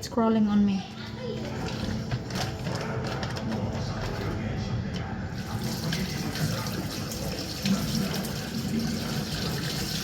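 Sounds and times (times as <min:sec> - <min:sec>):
tap running water into sink: 0:05.4 - 0:10.0.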